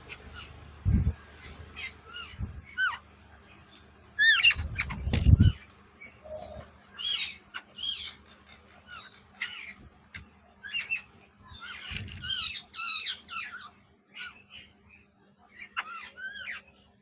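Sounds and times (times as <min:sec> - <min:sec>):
parrot squawking: 0:01.6 - 0:03.1, 0:04.2 - 0:05.6, 0:15.6 - 0:16.7.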